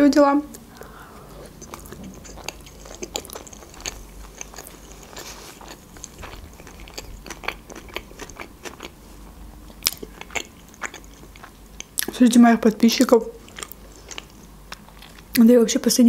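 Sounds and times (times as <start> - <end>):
mouth chewing clicks and smacks: 0.5 - 9.0, 9.7 - 12.2, 13.4 - 15.5.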